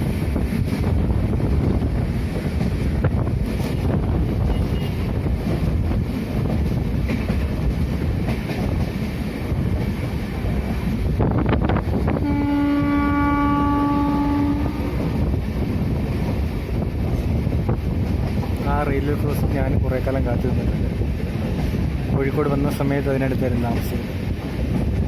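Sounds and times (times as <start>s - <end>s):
train running on track: 0.0s - 25.0s
locomotive horn blast: 12.2s - 15.2s.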